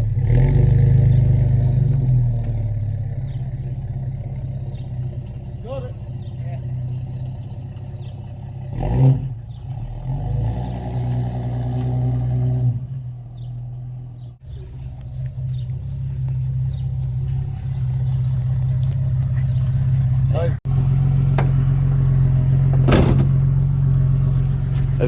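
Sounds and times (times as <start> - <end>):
car engine running: 0.0 - 10.6, 13.0 - 25.0.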